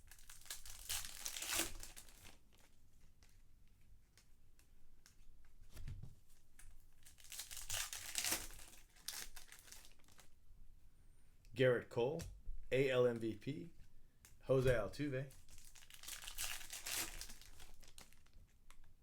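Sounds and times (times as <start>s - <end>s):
foil wrappers tearing and crinkling: 0.0s - 2.7s, 7.0s - 10.3s, 15.4s - 18.4s.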